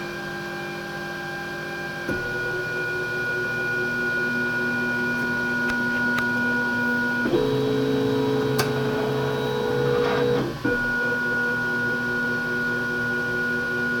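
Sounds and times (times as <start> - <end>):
stepper motors whining: 7.2 - 11.2.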